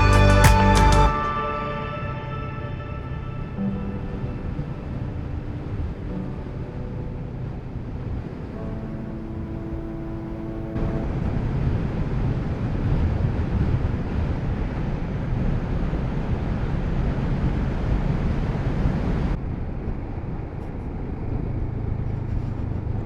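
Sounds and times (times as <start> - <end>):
wind rushing over microphone: 10.8 - 21.9.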